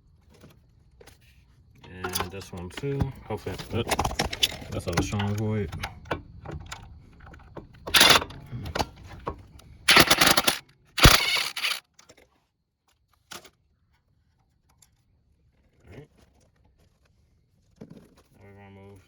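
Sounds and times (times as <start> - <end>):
power impact tool bursts: 8.0 - 8.2, 9.9 - 11.8.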